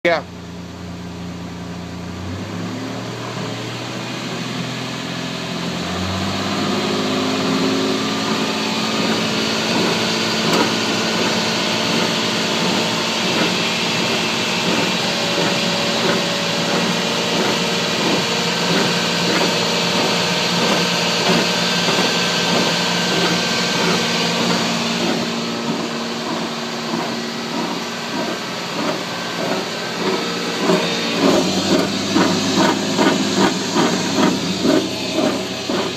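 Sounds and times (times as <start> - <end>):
drivetrain hum: 7.3 - 35.9
repeating grinding from wheel: 7.4 - 35.9.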